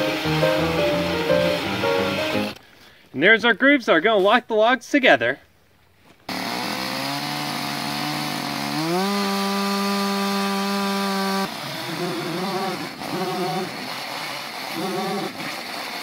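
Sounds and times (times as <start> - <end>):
chainsaw cutting into log: 0.0 - 2.6, 6.3 - 16.0
chainsaw revving: 0.0 - 2.6, 6.3 - 16.0.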